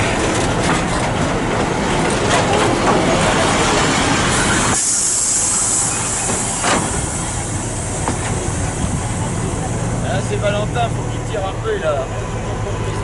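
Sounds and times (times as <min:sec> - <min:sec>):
train rumbling: 0:00.0 - 0:13.0
loud high hiss: 0:03.8 - 0:11.2.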